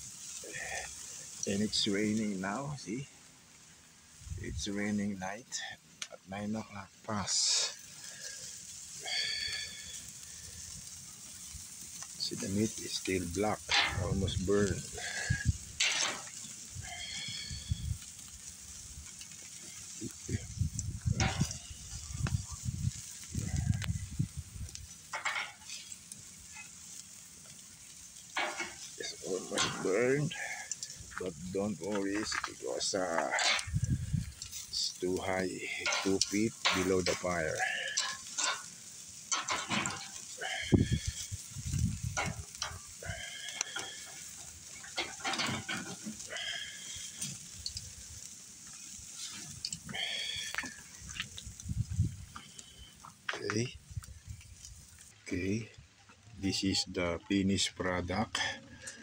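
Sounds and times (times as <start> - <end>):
fire crackles: 0.0 - 59.0
meat sizzling over fire: 0.0 - 59.0
wind rumbling on microphone: 4.2 - 4.7, 13.1 - 15.8, 16.6 - 25.1, 33.6 - 34.7, 40.4 - 43.3, 49.5 - 52.9, 53.8 - 55.1
rustling: 7.1 - 57.2.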